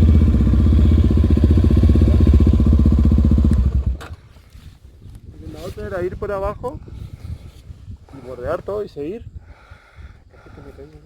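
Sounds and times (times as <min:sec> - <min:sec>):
motorcycle engine running: 0:00.0 - 0:04.0.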